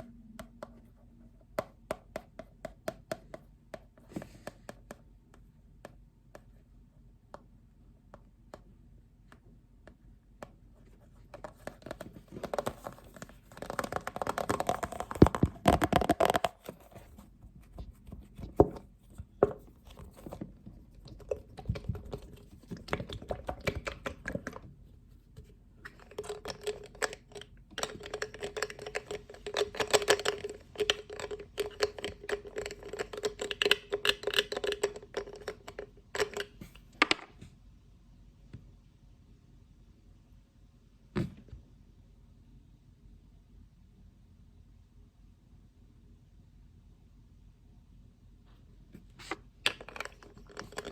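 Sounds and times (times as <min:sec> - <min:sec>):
tapping and scratching on a lid: 0:11.2 - 0:24.7, 0:25.4 - 0:37.2, 0:49.0 - 0:50.9.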